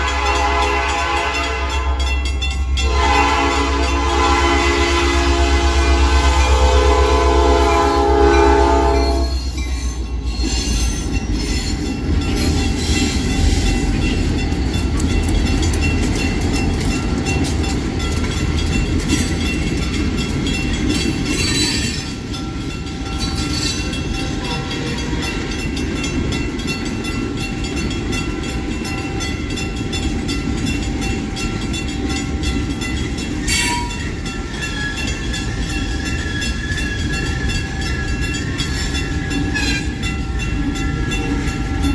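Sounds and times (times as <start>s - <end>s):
train horn: 0.0s - 2.2s, 2.8s - 9.5s
train rumble: 0.0s - 41.9s.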